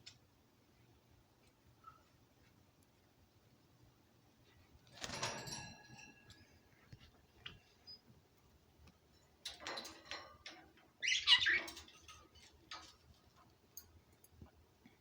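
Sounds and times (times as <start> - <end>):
birds calling in scratchy bursts: 11.0 - 11.9.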